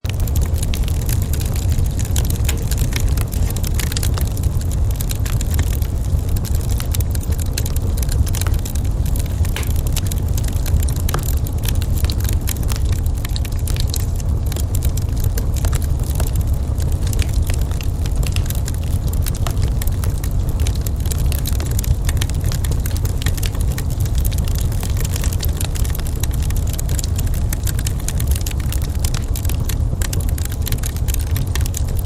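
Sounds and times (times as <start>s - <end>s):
low rumble: 0.0s - 23.3s
wood fire crackling: 0.0s - 32.0s.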